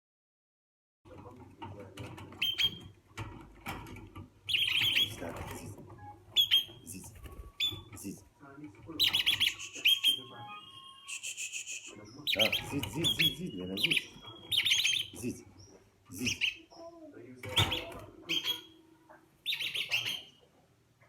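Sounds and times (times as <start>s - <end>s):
parrots chirping: 2.3s - 3.8s, 4.4s - 8.2s, 8.9s - 20.8s
parrot whistle: 6.4s - 6.8s, 9.0s - 15.1s.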